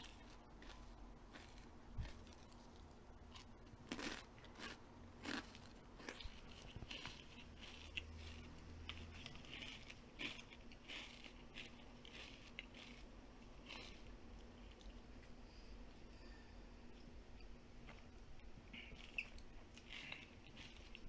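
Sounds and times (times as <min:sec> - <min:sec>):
crunching and chewing food: 0:00.0 - 0:15.4, 0:17.8 - 0:21.0.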